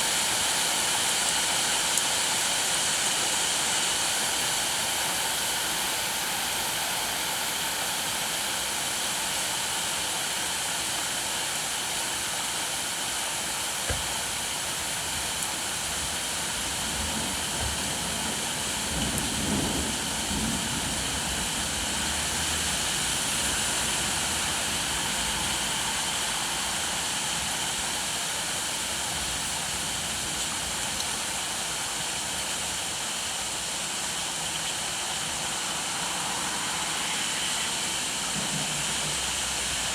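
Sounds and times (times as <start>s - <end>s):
steady rain hiss: 0.0s - 39.9s
single knock: 13.9s - 14.1s.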